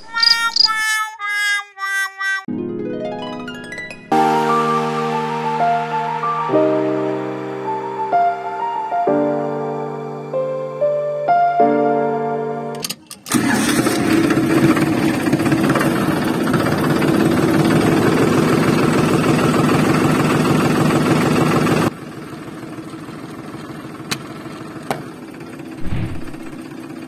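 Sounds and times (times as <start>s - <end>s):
tractor engine running: 13.2s - 27.0s.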